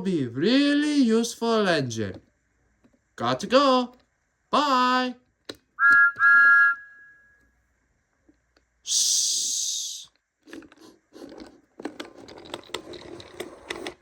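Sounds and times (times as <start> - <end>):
loud burst of hiss: 8.9 - 10.1
handling clicks and rustles: 10.5 - 14.0.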